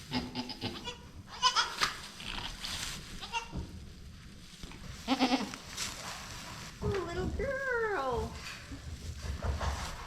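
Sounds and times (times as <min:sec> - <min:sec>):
goat kids bleating: 0:00.0 - 0:01.9, 0:03.2 - 0:03.6, 0:05.0 - 0:05.6.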